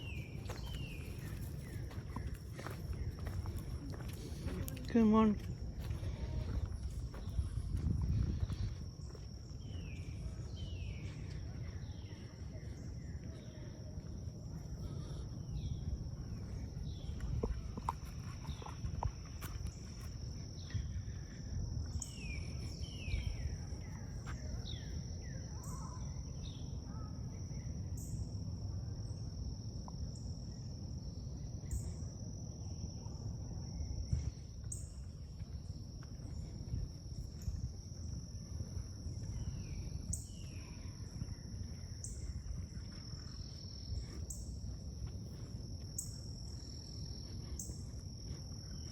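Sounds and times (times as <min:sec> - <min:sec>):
birds chirping: 0:00.0 - 0:05.4
constant low rumble: 0:00.0 - 0:48.9.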